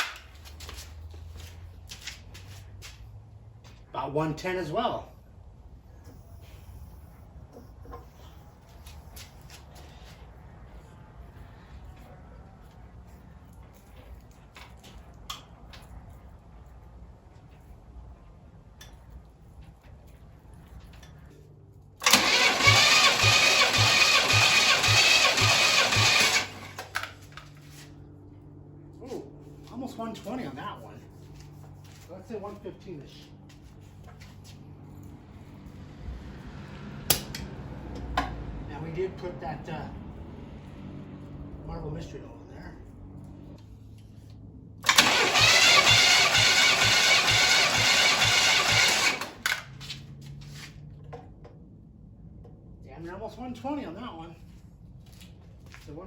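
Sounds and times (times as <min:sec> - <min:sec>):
engine cranking on starter: 0:22.0 - 0:27.2, 0:44.8 - 0:49.8.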